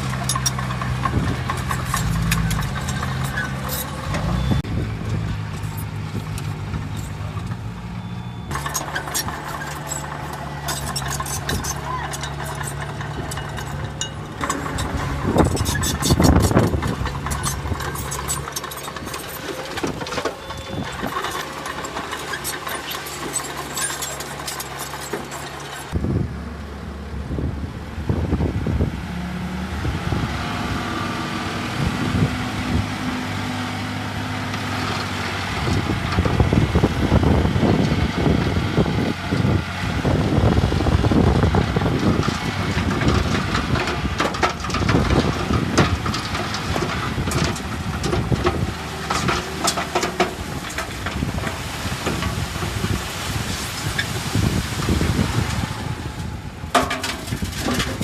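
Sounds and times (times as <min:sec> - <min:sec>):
metal knocks and clanks: 0:00.0 - 0:07.7, 0:08.5 - 0:26.0, 0:42.0 - 0:53.0, 0:56.7 - 0:58.0
diesel machinery running: 0:00.0 - 0:58.0.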